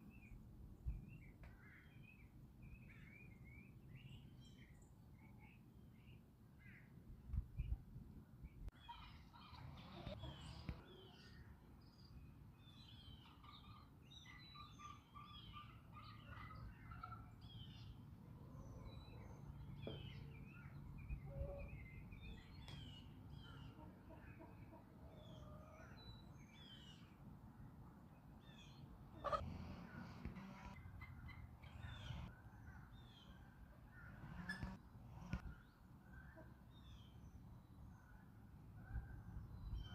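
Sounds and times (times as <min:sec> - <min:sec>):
small birds chirping: 0:08.5 - 0:27.2, 0:28.2 - 0:39.9
chickens clucking: 0:08.9 - 0:11.2, 0:22.6 - 0:25.9, 0:29.1 - 0:32.3.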